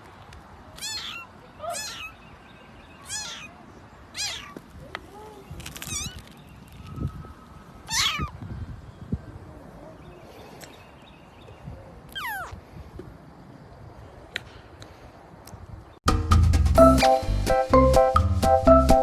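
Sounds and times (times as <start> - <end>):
cat meowing: 0.8 - 2.1, 3.1 - 3.5, 4.2 - 4.6.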